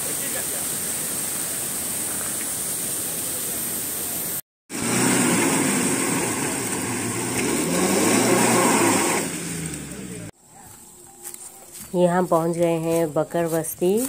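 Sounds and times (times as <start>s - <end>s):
car engine driving through mud: 4.7s - 10.4s.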